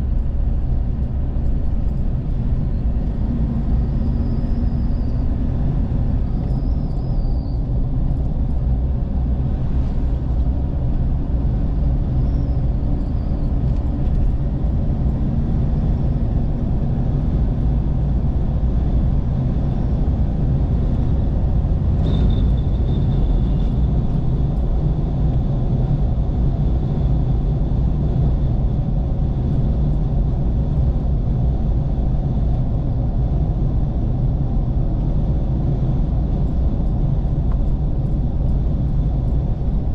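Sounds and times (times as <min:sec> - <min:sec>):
vehicle engine and road noise: 0:00.0 - 0:39.9.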